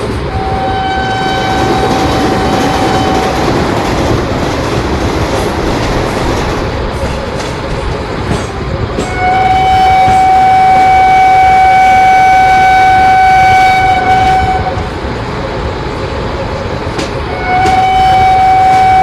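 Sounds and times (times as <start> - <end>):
train wheels rumbling on rails: 0.0 - 19.0
train horn blast: 0.3 - 3.7, 9.0 - 15.0, 17.2 - 19.0.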